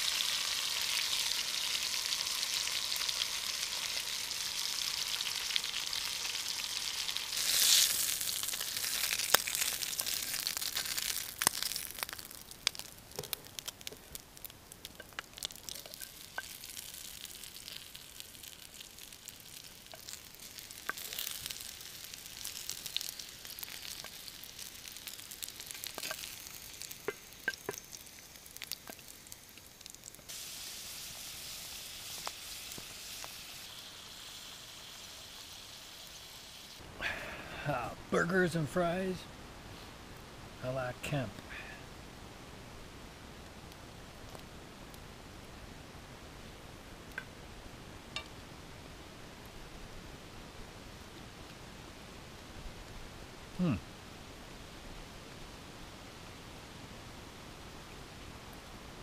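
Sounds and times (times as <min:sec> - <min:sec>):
food sizzling in frying pan: 0:00.0 - 0:36.8
pops and crackles: 0:07.3 - 0:30.3.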